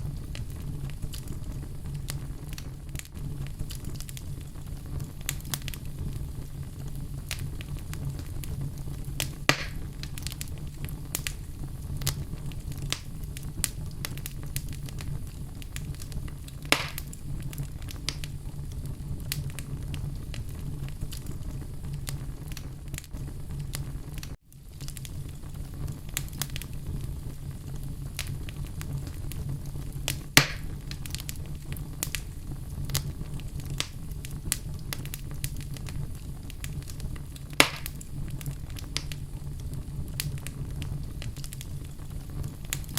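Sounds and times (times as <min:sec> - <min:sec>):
fire crackling and popping: 0:00.0 - 0:42.9
low rumble of flames: 0:00.0 - 0:42.9.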